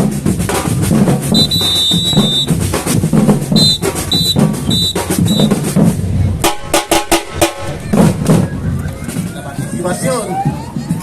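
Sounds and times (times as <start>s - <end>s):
samba drum ensemble playing: 0.0s - 11.0s
whistle blasts: 1.3s - 2.6s, 3.5s - 5.8s.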